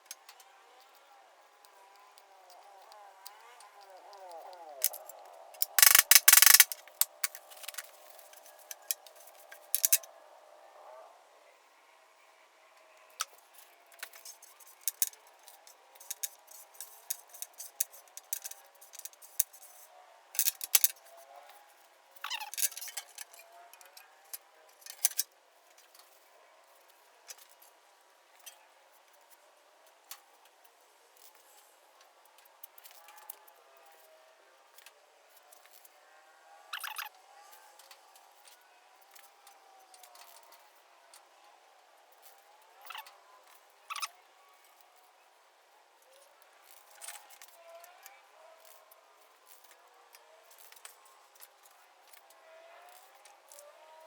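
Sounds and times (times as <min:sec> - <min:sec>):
spreader clicking and scraping: 0:01.6 - 0:10.1, 0:14.0 - 0:19.8, 0:20.4 - 0:21.2, 0:22.3 - 0:24.0, 0:24.8 - 0:25.2.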